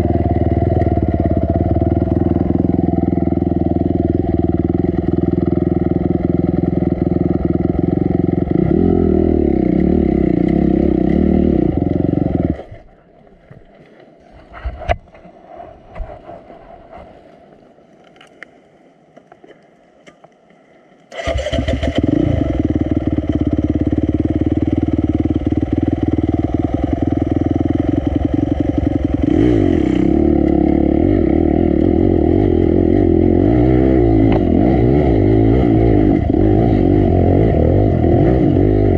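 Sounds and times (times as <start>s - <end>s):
dirt bike engine running: 0.0s - 12.7s, 21.2s - 38.9s.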